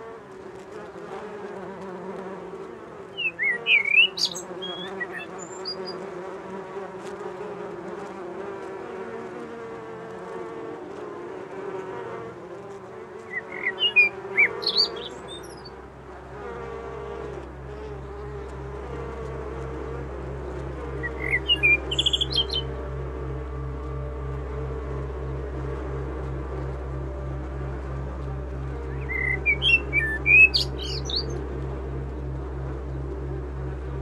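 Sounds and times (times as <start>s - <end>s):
bees buzzing: 0.0s - 34.0s
bird chirps: 3.2s - 6.0s, 13.3s - 15.8s, 21.0s - 22.8s, 28.9s - 31.4s
low pulsing hum: 13.2s - 34.0s.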